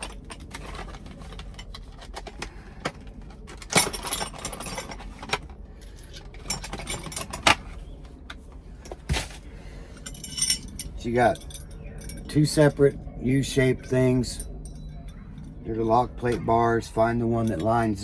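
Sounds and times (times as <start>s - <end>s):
metal tool pieces clinking: 10.0s - 12.8s, 17.2s - 18.0s.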